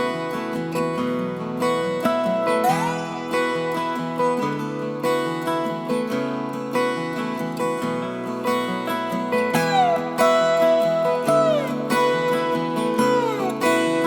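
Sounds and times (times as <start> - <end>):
acoustic guitar: 0.0 - 14.0.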